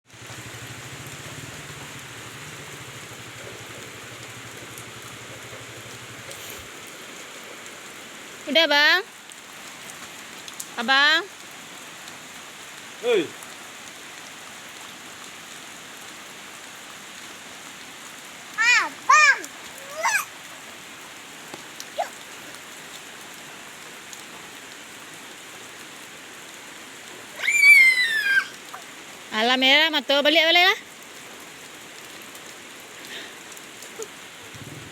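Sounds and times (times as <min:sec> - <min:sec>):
rain pouring: 0:00.0 - 0:34.9
loud high-pitched falling call: 0:27.4 - 0:28.5.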